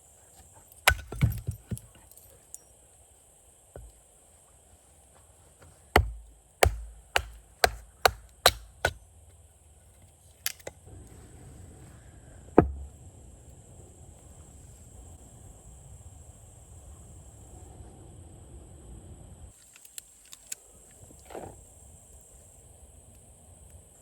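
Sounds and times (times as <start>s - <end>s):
wood chopping: 0.7s - 2.1s, 3.8s - 4.0s, 5.6s - 9.0s, 12.6s - 13.0s.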